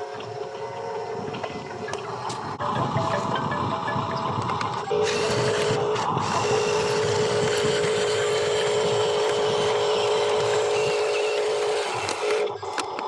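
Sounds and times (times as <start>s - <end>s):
small electric motor whining: 4.0s - 13.0s.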